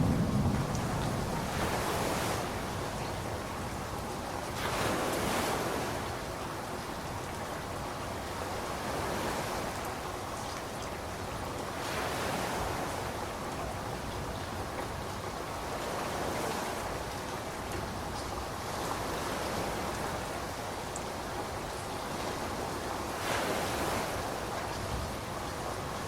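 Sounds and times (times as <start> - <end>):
rainfall hiss: 0.0 - 26.0.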